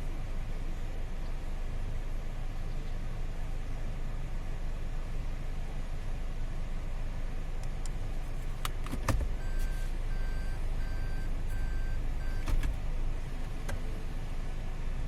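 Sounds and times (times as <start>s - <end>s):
car interior low rumble: 0.0s - 15.0s
short electronic car beeps: 9.4s - 12.5s.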